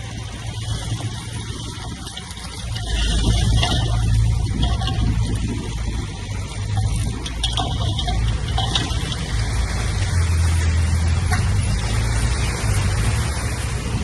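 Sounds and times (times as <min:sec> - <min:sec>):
heavy diesel machinery engine drone: 0:00.0 - 0:14.0
mechanical clanks: 0:06.5 - 0:09.5.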